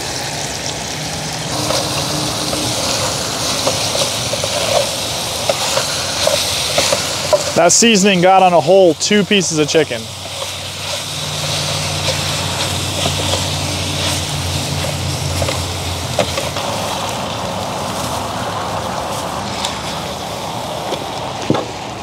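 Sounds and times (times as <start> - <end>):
chicken frying in oil: 0.0 - 22.0
low steady hum: 1.5 - 5.6.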